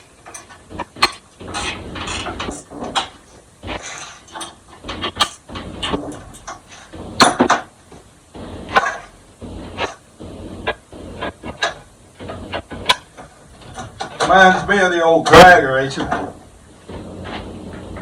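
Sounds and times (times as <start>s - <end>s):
scraping sheet metal: 0.0s - 7.7s.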